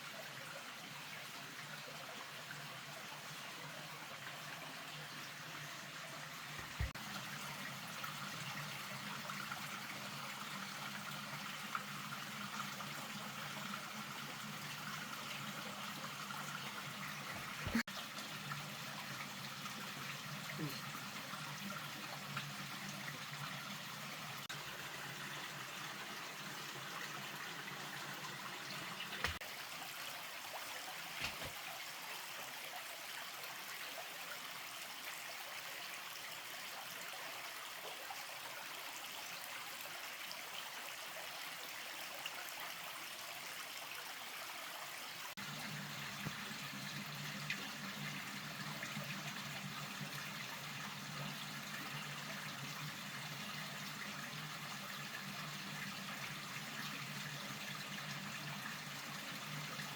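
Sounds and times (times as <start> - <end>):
rain falling and trickling: 0.0 - 59.9.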